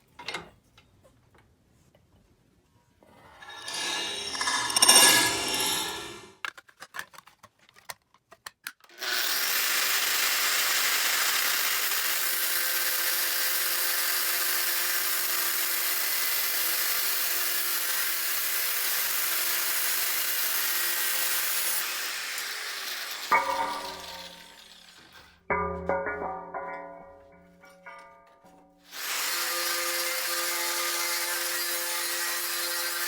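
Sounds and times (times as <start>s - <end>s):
angle grinder grinding metal: 3.4s - 6.4s, 20.9s - 25.3s, 28.9s - 33.0s.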